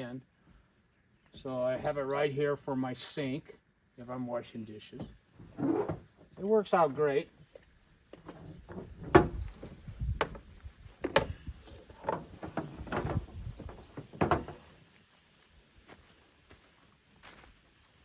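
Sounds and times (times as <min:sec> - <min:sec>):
knocks and clunks: 0:08.2 - 0:14.8.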